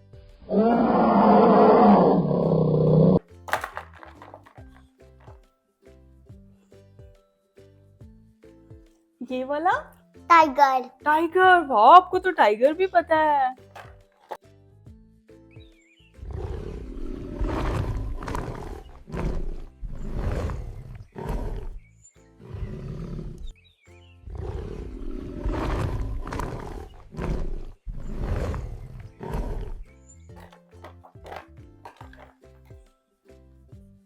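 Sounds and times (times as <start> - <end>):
background music: 0.0 - 34.0
tiger roaring: 0.5 - 3.2, 16.2 - 21.8, 22.4 - 23.5, 24.2 - 32.2.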